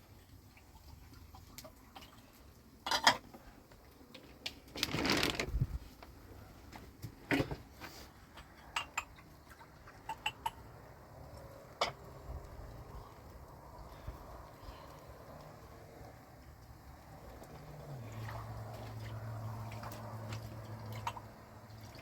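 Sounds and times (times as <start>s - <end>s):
noisy scrape or rustle: 4.7s - 6.0s, 7.4s - 8.2s.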